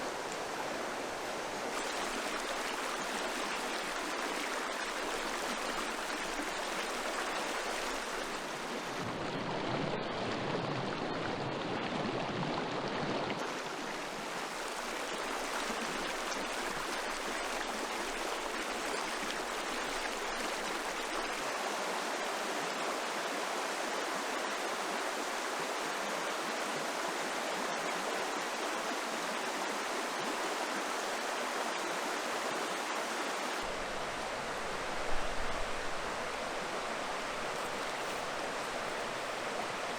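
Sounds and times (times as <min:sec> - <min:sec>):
river water rushing over stones: 0:00.0 - 0:12.0, 0:12.7 - 0:39.9.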